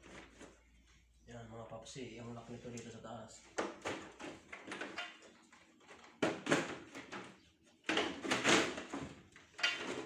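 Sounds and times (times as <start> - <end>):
plastic parts knocking and scraping: 3.5 - 10.0.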